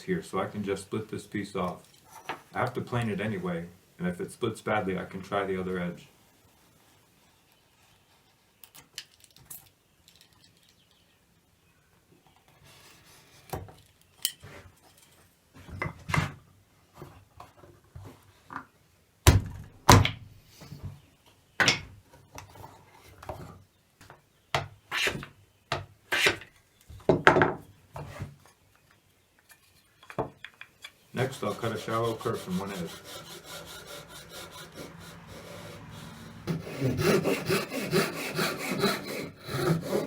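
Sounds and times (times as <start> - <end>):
knife scraping wood: 24.9 - 25.3, 26.1 - 26.5, 31.2 - 40.0
wooden knocks and thunks: 26.9 - 28.1.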